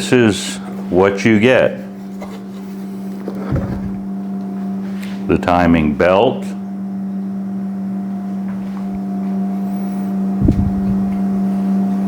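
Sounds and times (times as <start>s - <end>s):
low machine hum: 0.0s - 12.0s
soft thump: 3.5s - 4.0s.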